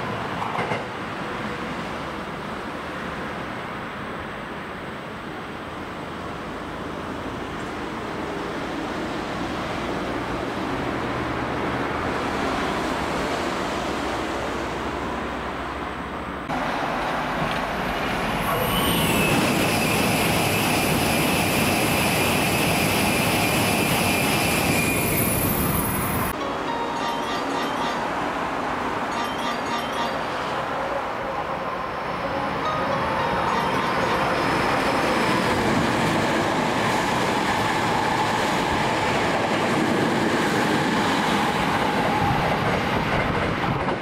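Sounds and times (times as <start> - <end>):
train rushing: 5.4 - 44.0
high-pitched train squeal: 18.4 - 28.4, 29.1 - 35.6.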